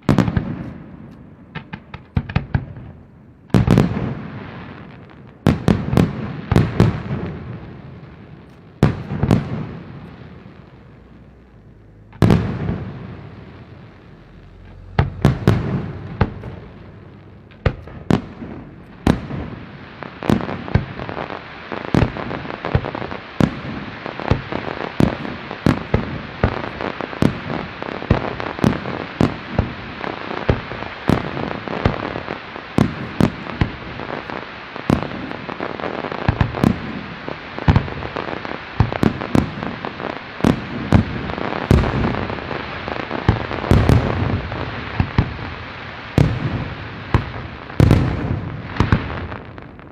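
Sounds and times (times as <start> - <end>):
rapid firework reports and crackle: 0.0 - 49.9
firework shells bursting: 8.1 - 29.9, 36.3 - 49.9.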